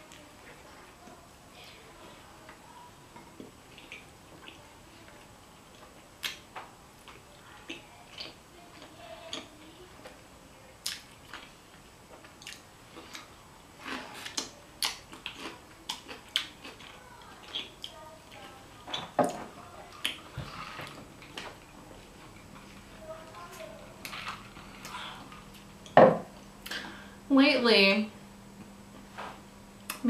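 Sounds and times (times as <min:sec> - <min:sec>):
close-up chewing: 0:02.4 - 0:06.4, 0:07.0 - 0:10.2, 0:10.8 - 0:26.0.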